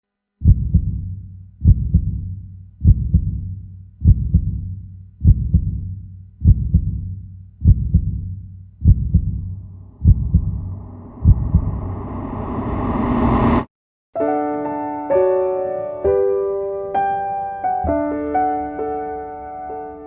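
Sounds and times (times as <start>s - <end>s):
heartbeat double thumps: 0.4s - 12.8s
low hum: 0.4s - 13.7s.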